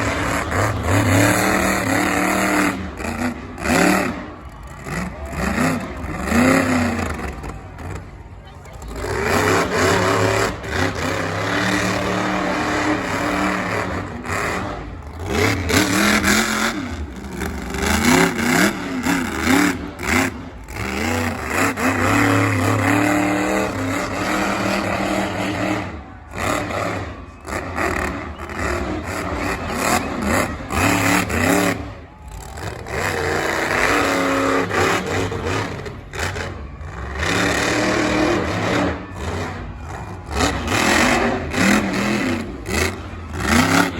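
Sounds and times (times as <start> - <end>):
heavy truck engine revving: 0.0 - 43.9.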